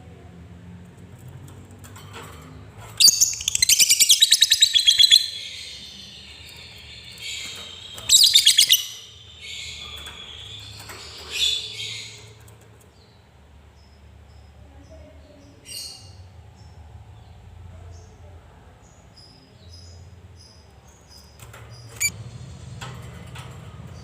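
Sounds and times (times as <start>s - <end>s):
high bird chirps: 3.0s - 12.4s, 21.9s - 22.2s
lovebird rattling trills: 3.0s - 12.4s, 21.2s - 22.2s.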